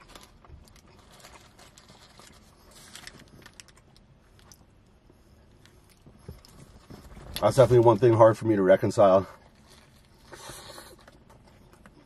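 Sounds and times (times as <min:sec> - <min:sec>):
paper wrapper rustling: 0:00.0 - 0:03.9.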